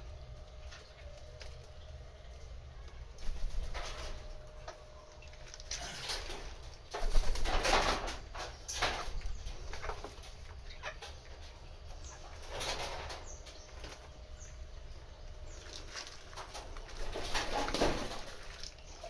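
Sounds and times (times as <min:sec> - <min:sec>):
birds flapping wings: 0:03.1 - 0:11.1, 0:12.2 - 0:14.2, 0:15.6 - 0:19.0.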